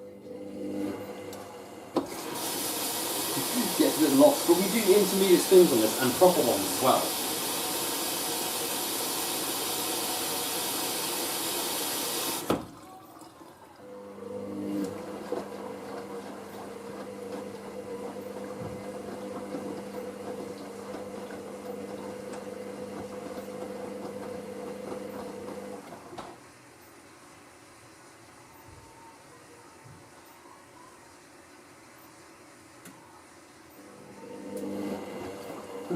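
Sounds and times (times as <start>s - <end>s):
washing machine motor hum: 0.0s - 35.9s
washing machine water rushing: 0.3s - 26.2s, 33.8s - 35.9s.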